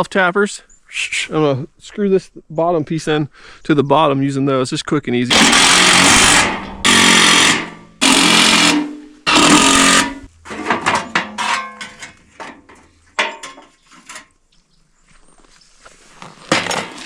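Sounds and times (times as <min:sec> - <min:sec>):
power driver driving screws into steel: 0:05.3 - 0:10.3.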